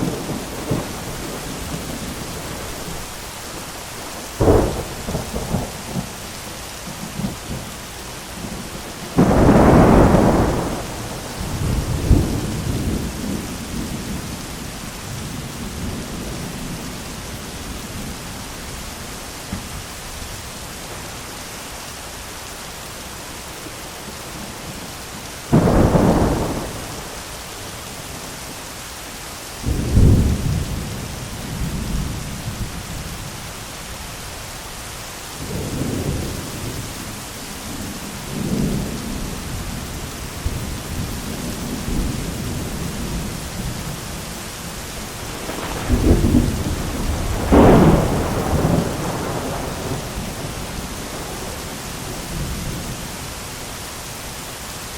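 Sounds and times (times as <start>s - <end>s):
steady rain: 0.0s - 54.9s
thunder: 4.4s - 6.2s, 9.1s - 14.3s, 25.5s - 27.2s, 29.6s - 32.7s, 45.2s - 52.9s.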